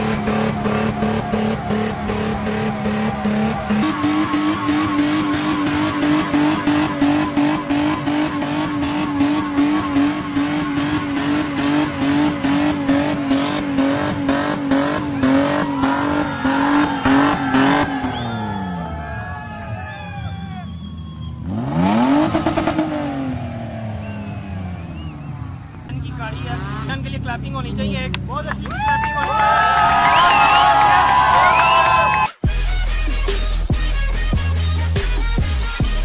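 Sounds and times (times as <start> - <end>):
tyres spinning on loose dirt: 0.0 - 7.7
car engine revving: 0.0 - 28.4.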